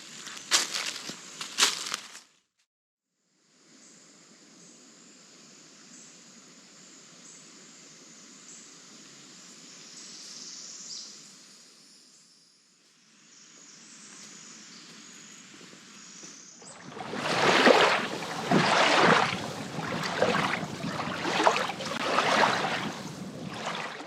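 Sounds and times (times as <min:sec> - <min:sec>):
footsteps crunching through dry leaves: 0:00.0 - 0:02.3.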